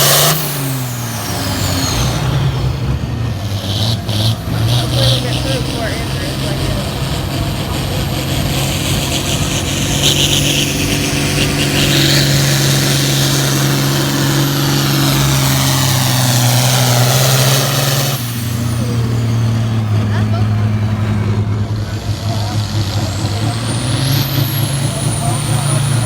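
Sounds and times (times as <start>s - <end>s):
tractor engine running hard: 0.0s - 26.0s.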